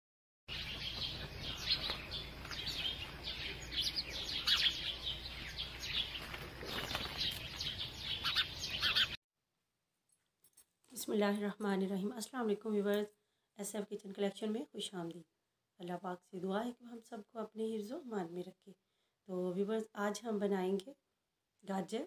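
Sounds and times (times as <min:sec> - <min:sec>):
many birds chirping: 0:00.5 - 0:09.2.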